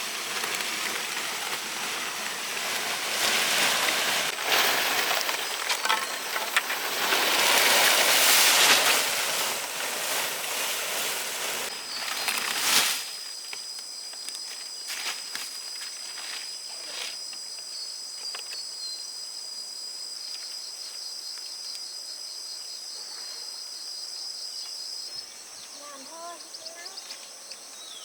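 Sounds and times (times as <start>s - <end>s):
faint rustles: 0.0s - 13.5s
insects droning: 0.0s - 28.0s.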